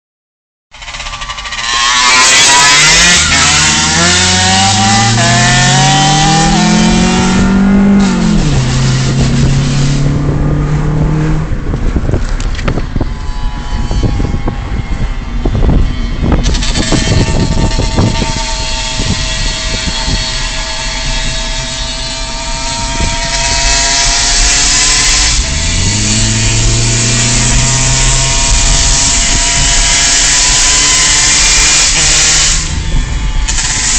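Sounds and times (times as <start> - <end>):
dirt bike engine revving: 0.8 - 11.6, 15.6 - 33.9.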